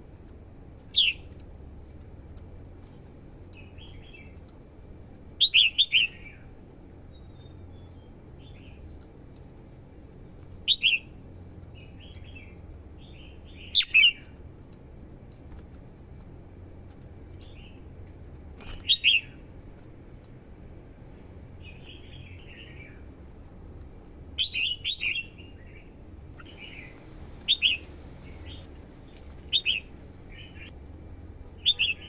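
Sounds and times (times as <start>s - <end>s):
bulbul singing bright phrases: 0.8s - 1.4s, 3.5s - 4.5s, 5.3s - 9.0s, 10.6s - 14.4s, 18.7s - 19.5s, 21.5s - 23.1s, 24.3s - 30.8s, 31.6s - 32.0s.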